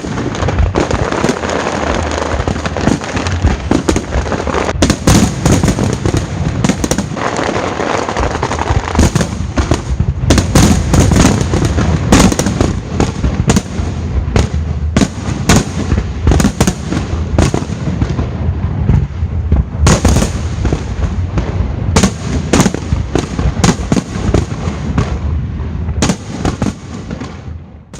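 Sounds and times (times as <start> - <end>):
firework shell bursts and crackling: 0.0 - 18.2.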